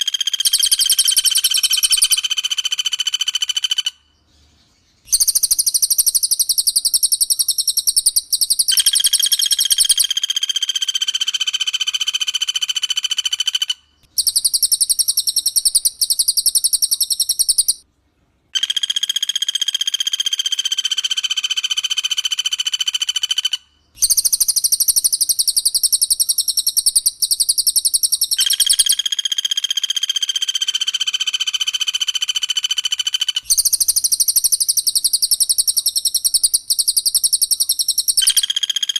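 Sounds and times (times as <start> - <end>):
fast high bird trill: 33.0 - 38.9.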